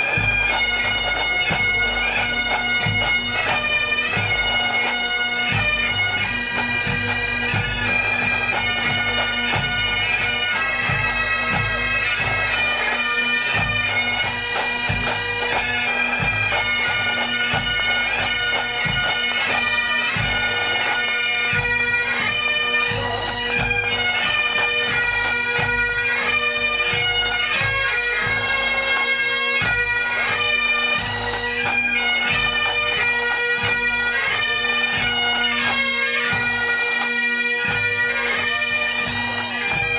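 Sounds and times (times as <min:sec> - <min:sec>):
drums beating: 0:00.0 - 0:04.4, 0:05.5 - 0:12.9, 0:21.5 - 0:28.4
bagpipes playing a march: 0:00.0 - 0:39.9.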